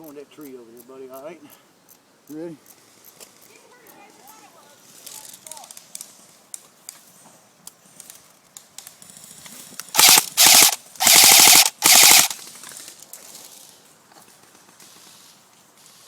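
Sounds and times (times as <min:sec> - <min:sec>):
airsoft rifle rapid clicking shots: 0:09.9 - 0:12.4.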